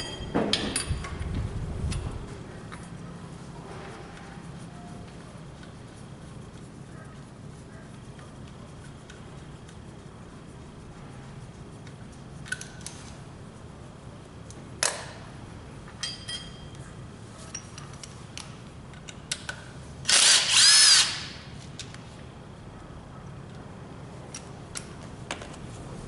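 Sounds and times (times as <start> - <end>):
tools clicking and knocking: 0.0 - 1.2, 17.5 - 20.9
power tool whirring: 20.1 - 21.4.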